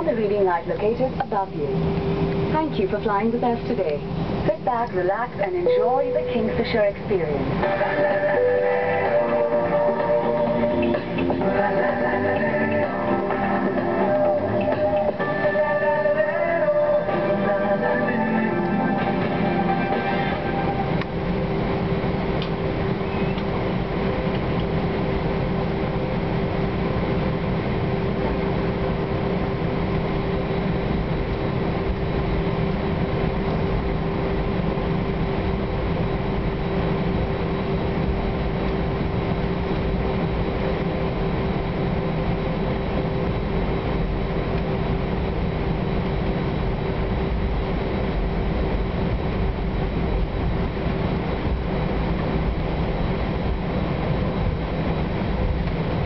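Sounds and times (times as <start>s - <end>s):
constant hum: 0.0s - 56.0s
jet engine drone: 0.0s - 56.0s
low rumble: 0.0s - 56.0s.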